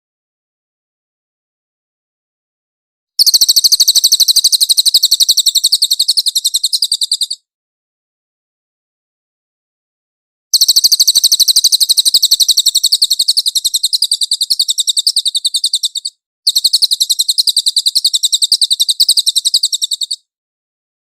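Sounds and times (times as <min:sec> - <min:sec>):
songbird trilling: 0:03.2 - 0:07.4, 0:10.6 - 0:20.2.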